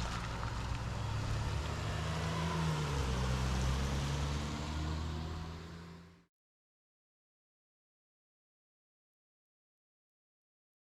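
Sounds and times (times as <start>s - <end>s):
vehicle engine and road noise: 0.0s - 6.3s.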